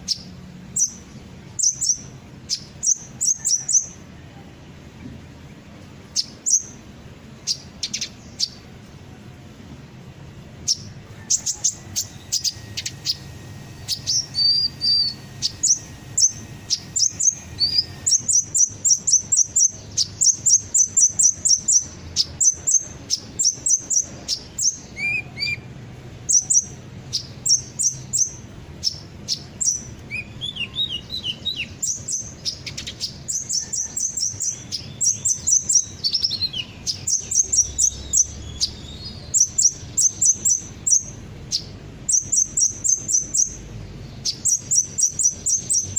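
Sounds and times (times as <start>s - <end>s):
sunbird chirps and trills: 0.0s - 45.9s
low falling bird notes: 10.3s - 25.8s.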